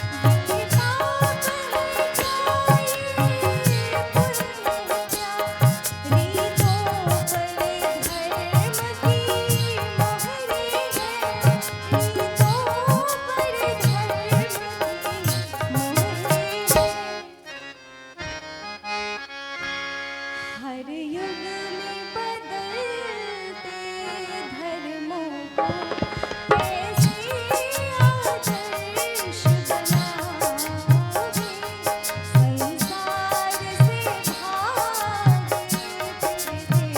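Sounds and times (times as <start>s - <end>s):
dholak drum: 0.0s - 17.2s, 25.6s - 36.9s
woman singing: 0.0s - 17.5s, 20.6s - 36.9s
tabla: 0.0s - 17.6s, 22.9s - 36.9s
harmonium chords: 0.0s - 36.9s.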